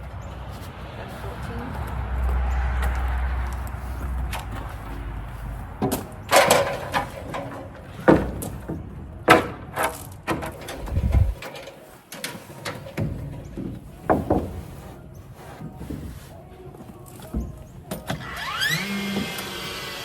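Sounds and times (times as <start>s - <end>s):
siding knocking and clattering: 5.8s - 14.8s.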